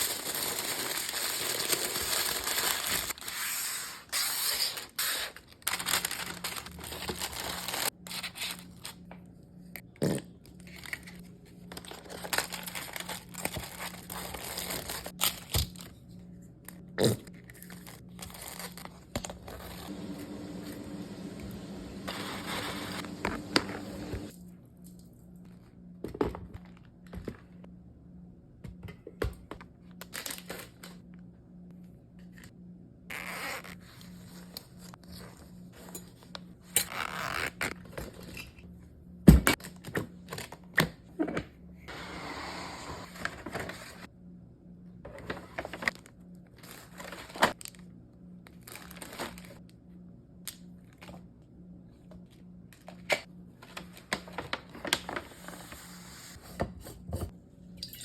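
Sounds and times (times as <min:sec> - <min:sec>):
packaging rustling and scraping: 0:00.0 - 0:09.2, 0:10.5 - 0:16.1, 0:17.3 - 0:21.1, 0:22.0 - 0:24.4, 0:41.9 - 0:44.1, 0:45.1 - 0:47.8, 0:48.5 - 0:49.6
steady low hum: 0:15.3 - 0:33.1.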